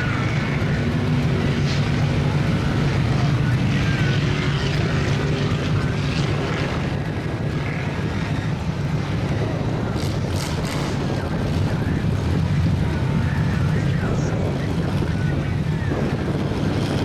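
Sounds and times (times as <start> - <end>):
truck engines running: 0.0 - 17.0.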